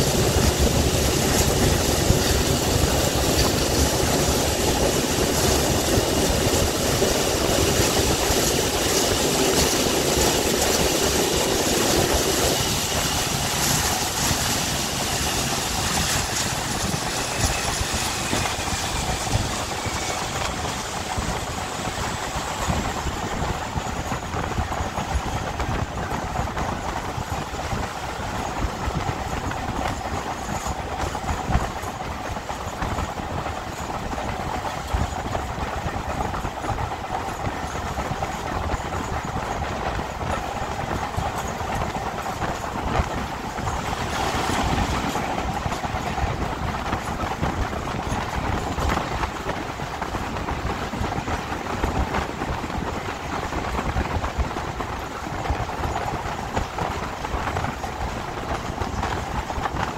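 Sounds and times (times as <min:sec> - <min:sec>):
diesel train running: 0:00.0 - 0:59.9
wheels clicking over rail joints: 0:00.0 - 0:59.9.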